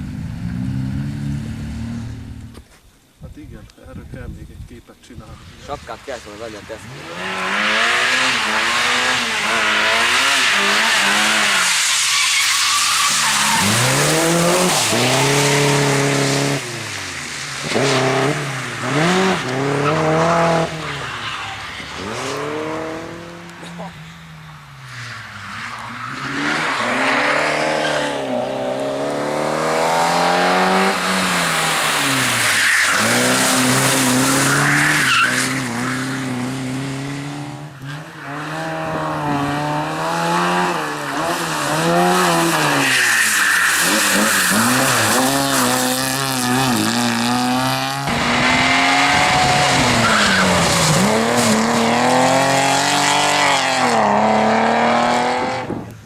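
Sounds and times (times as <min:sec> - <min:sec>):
race car engine at full throttle: 0:06.5 - 0:11.7, 0:25.5 - 0:56.0
tyre squeal: 0:09.4 - 0:16.4, 0:31.0 - 0:36.4, 0:40.8 - 0:47.0.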